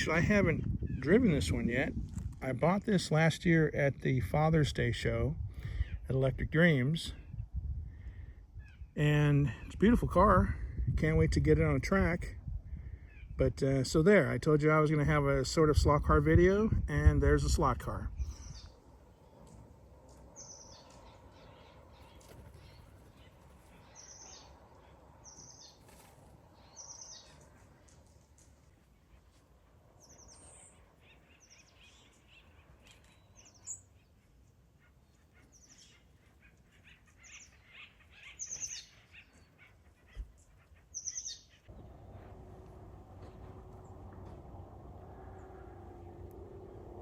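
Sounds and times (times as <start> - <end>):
wild birds chirping: 5.6 - 9.8, 12.5 - 13.4, 17.5 - 47.0
steady low noise: 41.7 - 47.0.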